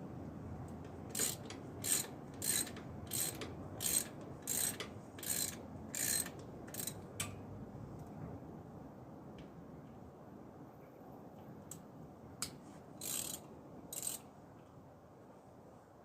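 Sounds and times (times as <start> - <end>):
hand ratchet clicking: 1.1 - 7.0, 13.0 - 14.2.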